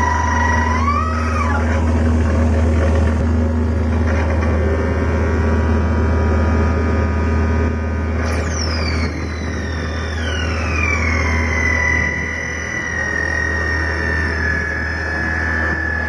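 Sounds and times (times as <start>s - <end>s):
deep hum: 0.0s - 16.0s
electronic drone music: 4.7s - 16.0s
held higher tones: 8.5s - 16.0s.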